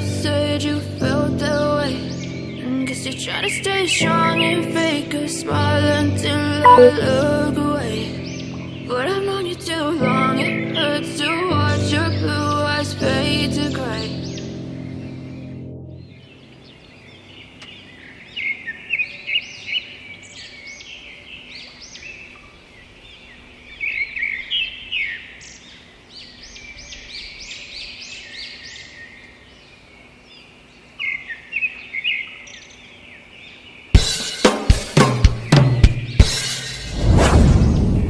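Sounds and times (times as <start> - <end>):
music track: 6.6 - 7.2
small birds chirping: 14.0 - 36.8.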